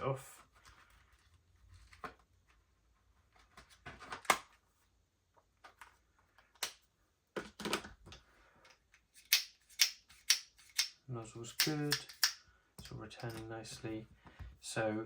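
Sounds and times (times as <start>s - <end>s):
airsoft pistol clicks and clacks: 9.2s - 11.0s, 11.6s - 12.4s.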